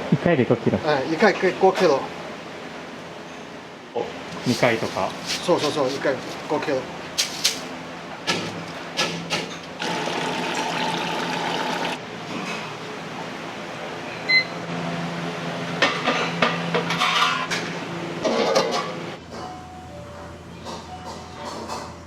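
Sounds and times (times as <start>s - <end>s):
kitchen clatter: 15.8s - 19.0s.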